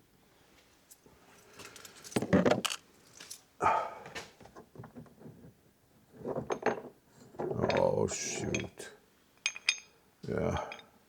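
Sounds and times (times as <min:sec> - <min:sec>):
small metal parts clinking: 0:01.4 - 0:03.5, 0:09.4 - 0:10.0.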